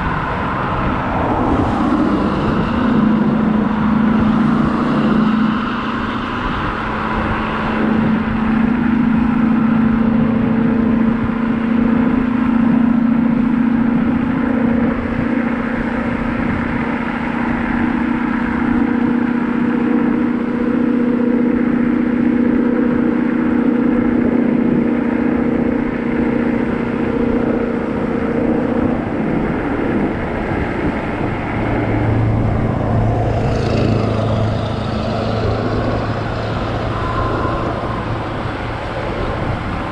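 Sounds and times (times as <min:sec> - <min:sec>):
electric scooter motor whine: 0:00.0 - 0:39.9
low hum: 0:00.0 - 0:39.9
wind and road noise: 0:00.0 - 0:39.9.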